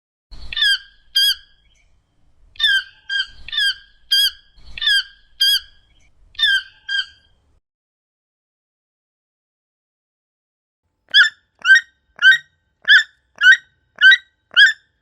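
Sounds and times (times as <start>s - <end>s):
toucan squawking calls: 0.4s - 1.8s, 2.6s - 7.3s, 11.1s - 14.9s.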